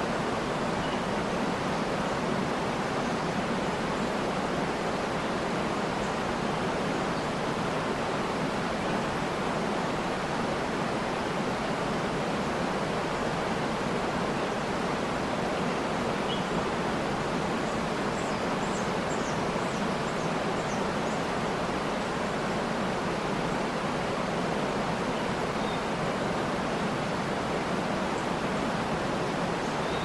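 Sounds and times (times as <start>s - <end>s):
waterfall rushing: 0.0s - 30.0s
faint high bird chirps: 29.8s - 30.0s.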